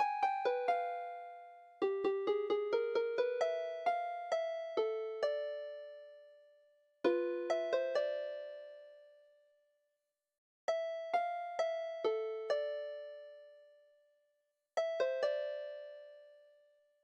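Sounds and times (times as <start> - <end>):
slow keyboard melody: 0.0 - 6.4, 7.0 - 9.1, 10.7 - 13.8, 14.8 - 16.6.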